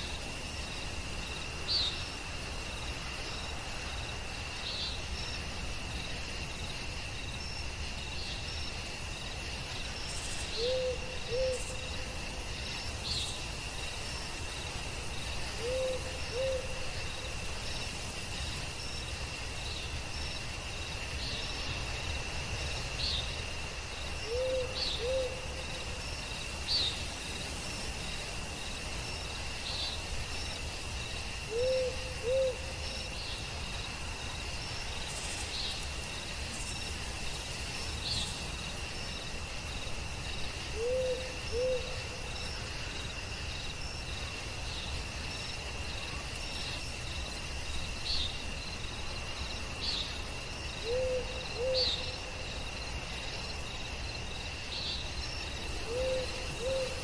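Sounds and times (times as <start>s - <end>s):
crickets chorus: 0.0s - 57.0s
owl hooting: 10.6s - 11.7s, 15.6s - 16.7s, 24.2s - 25.4s, 31.5s - 32.6s, 40.8s - 41.9s, 50.8s - 52.0s, 55.8s - 57.0s.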